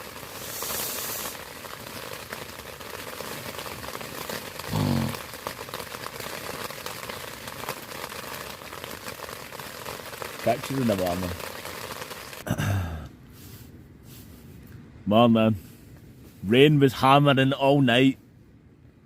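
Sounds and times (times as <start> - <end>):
rain pattering on a tent: 0.0 - 13.0.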